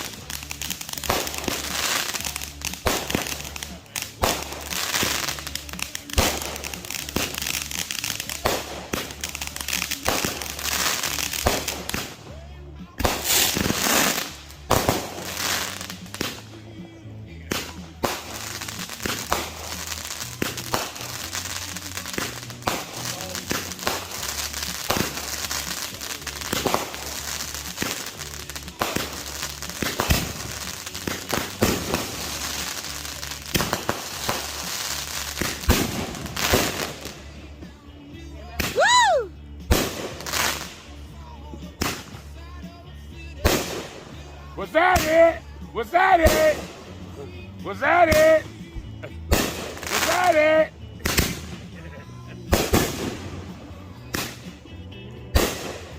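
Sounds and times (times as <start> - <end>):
firework shot bursts: 0.0 - 12.3, 13.0 - 16.6, 17.4 - 37.3, 38.6 - 40.9, 41.8 - 42.2, 43.4 - 45.4, 49.3 - 51.8, 52.5 - 54.6, 55.3 - 55.9
firework crackling: 0.0 - 55.9
firework whistle: 38.7 - 39.3.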